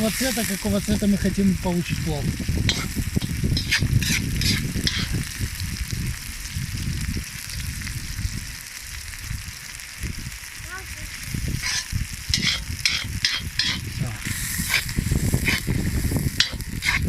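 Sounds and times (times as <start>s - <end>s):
onions sizzling in oil: 0.0s - 17.0s
utensil clinking against pot: 11.6s - 13.8s, 16.4s - 17.0s.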